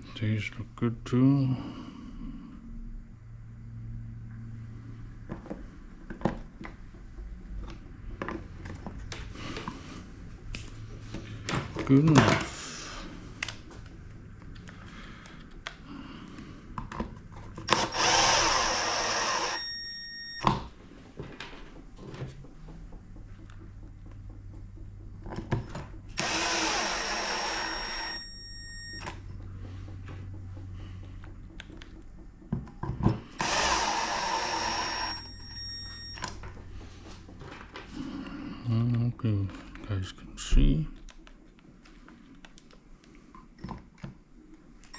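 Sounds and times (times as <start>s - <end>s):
power drill motor whine: 17.6s - 20.6s, 26.1s - 29.2s, 33.2s - 36.5s.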